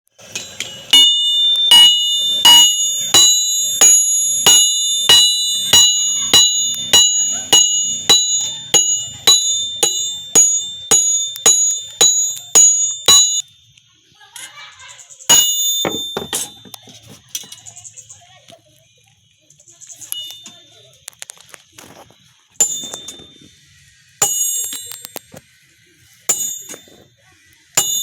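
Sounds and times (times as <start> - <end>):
hammer striking steel on anvil: 0.2 - 13.4, 15.3 - 16.8, 22.6 - 23.4, 24.2 - 25.1, 26.3 - 27.0, 27.8 - 28.0.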